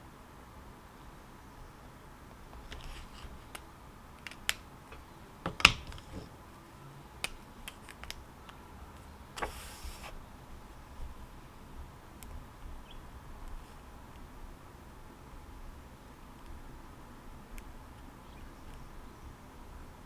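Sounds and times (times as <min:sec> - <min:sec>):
brief rustle: 0:02.6 - 0:05.1, 0:09.4 - 0:10.2.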